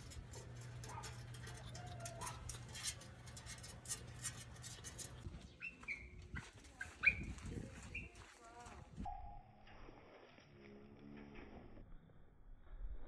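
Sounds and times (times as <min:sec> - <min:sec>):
steady low hum: 0:00.0 - 0:05.3.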